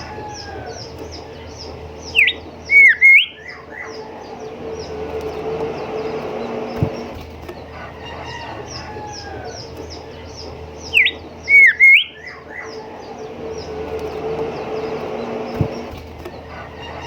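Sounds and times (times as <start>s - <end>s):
low hum: 0.0s - 17.0s
bird singing clear whistles: 2.0s - 4.1s, 10.8s - 12.8s.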